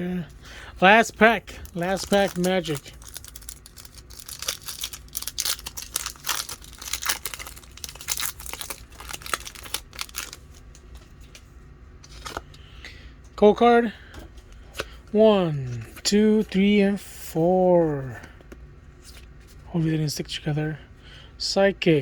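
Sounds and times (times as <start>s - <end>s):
wrapper tearing and crinkling: 1.5s - 10.6s.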